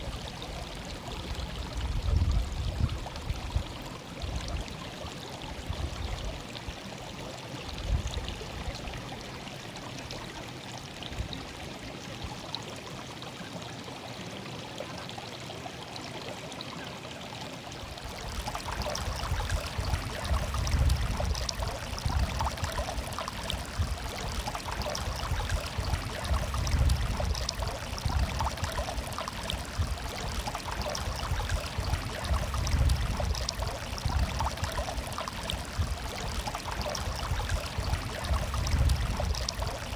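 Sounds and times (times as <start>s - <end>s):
water babbling in a stream: 0.0s - 39.9s.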